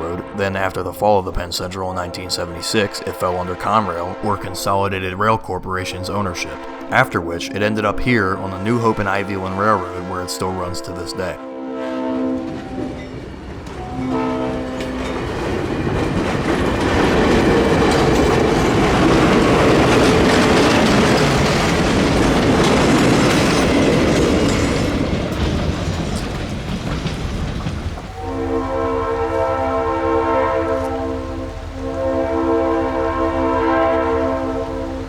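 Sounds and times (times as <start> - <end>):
locomotive horn chord: 0.0 - 25.5, 28.0 - 35.0
diesel locomotive engine: 0.0 - 35.0
train wheels on rails: 12.2 - 35.0.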